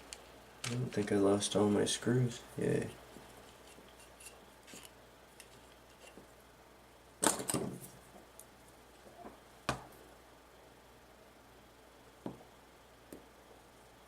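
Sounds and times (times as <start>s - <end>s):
small parts clicking and rattling: 0.0s - 1.1s.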